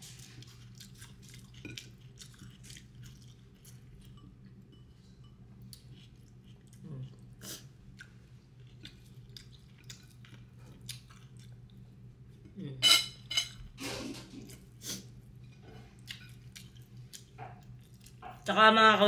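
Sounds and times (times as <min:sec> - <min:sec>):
chewing with wet mouth clicks: 0:00.4 - 0:04.5, 0:05.6 - 0:11.8, 0:16.0 - 0:18.3.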